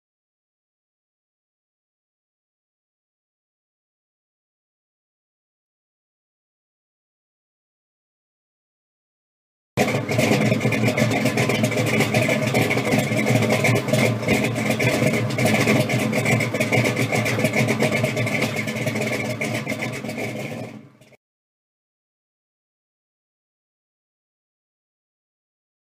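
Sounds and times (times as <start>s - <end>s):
car engine running: 9.8s - 21.2s.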